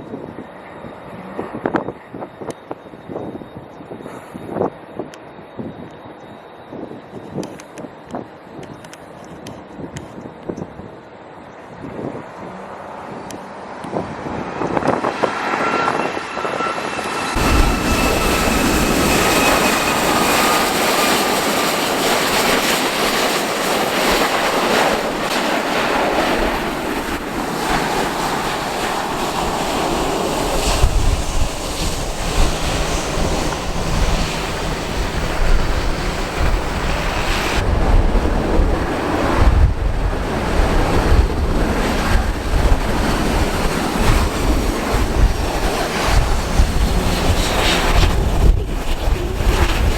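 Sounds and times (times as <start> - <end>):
wind buffeting microphone: 0.0 - 6.1, 6.7 - 49.9
engine whine sliding down: 12.0 - 39.9, 41.0 - 49.9
jet airliner rush: 12.1 - 49.9.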